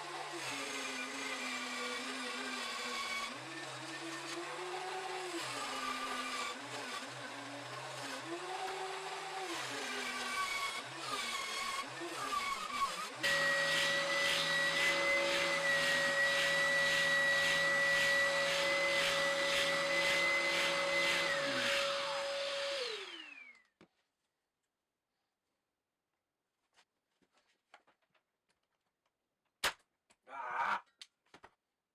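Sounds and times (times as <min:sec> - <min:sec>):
power tool motor running: 0:09.8 - 0:23.6.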